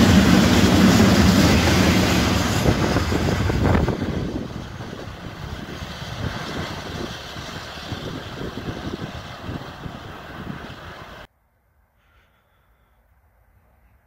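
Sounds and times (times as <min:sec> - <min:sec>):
train rail noise: 0:00.0 - 0:11.3.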